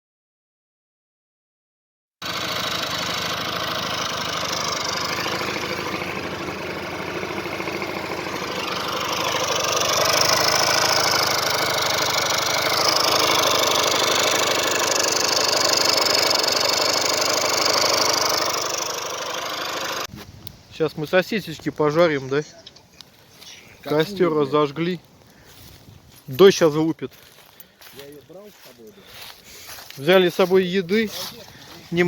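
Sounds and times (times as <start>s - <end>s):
small motorcycle engine running: 2.2s - 20.1s.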